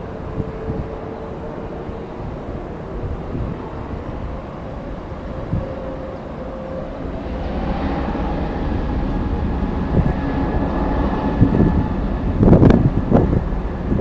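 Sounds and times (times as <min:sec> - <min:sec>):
jet engines whining: 0:00.0 - 0:14.0
wind buffeting microphone: 0:00.0 - 0:14.0.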